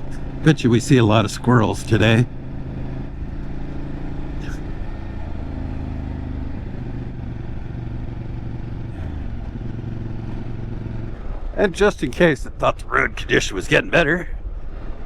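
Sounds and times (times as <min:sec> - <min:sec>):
motorcycle engine running: 0:00.0 - 0:11.7.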